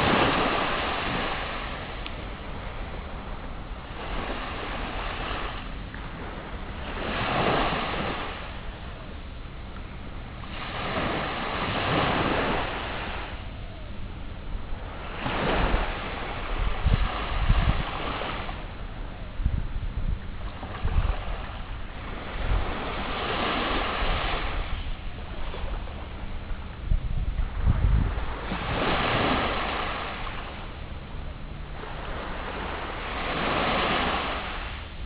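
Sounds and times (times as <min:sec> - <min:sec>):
sea waves breaking: 0:00.0 - 0:35.0
wind rumbling on microphone: 0:00.0 - 0:35.0.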